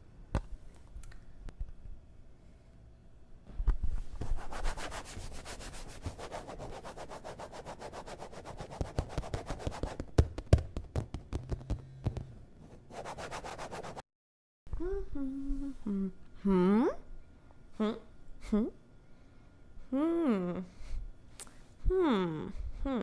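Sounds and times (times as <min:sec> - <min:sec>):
rhythmic rubbing strokes: 0:04.3 - 0:10.0.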